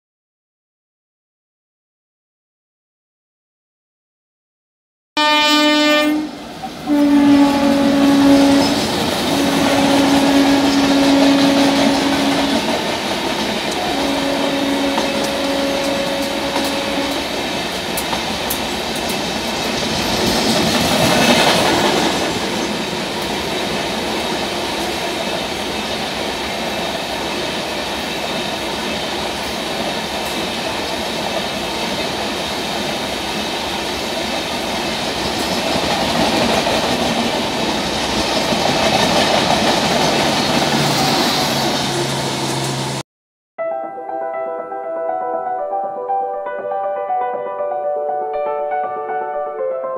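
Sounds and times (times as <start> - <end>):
locomotive horn blasts: 5.2 - 12.8, 13.8 - 17.4
train coaches rushing rumble: 6.3 - 43.0.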